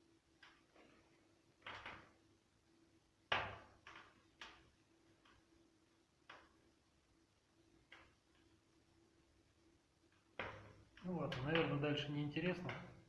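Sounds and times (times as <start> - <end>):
firewood crackling and popping: 0.3 - 2.4, 3.2 - 6.8, 10.0 - 13.0.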